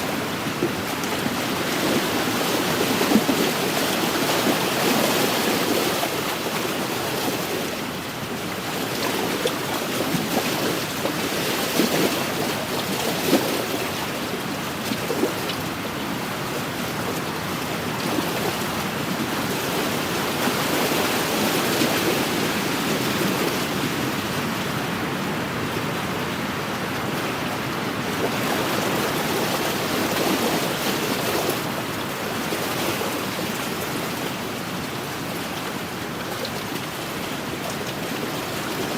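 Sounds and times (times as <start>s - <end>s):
lake waves splashing on shore: 0.0s - 38.9s
wind blowing: 16.9s - 31.2s.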